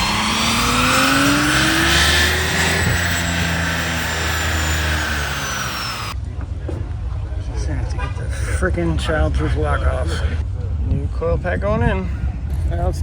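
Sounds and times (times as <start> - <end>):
car engine pulling hard: 0.0 - 6.2
high whine: 0.0 - 6.2.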